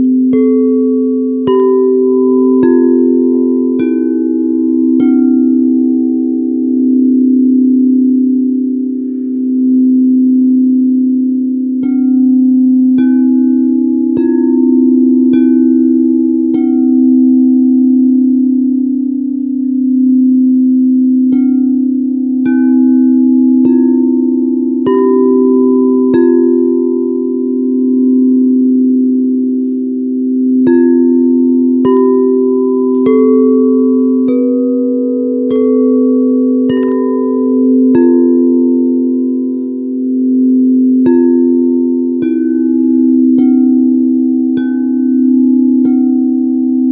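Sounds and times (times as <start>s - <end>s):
singing bowls ringing: 0.0s - 46.9s.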